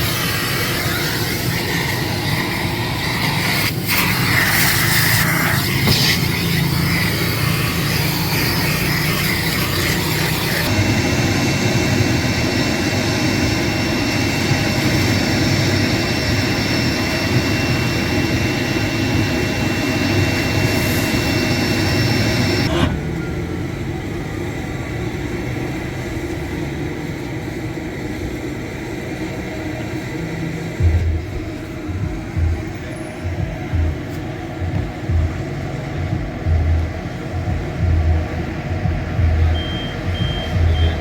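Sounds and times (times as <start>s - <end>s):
car wash machine noise: 0.0s - 41.0s
faint high steady tones: 37.3s - 41.0s.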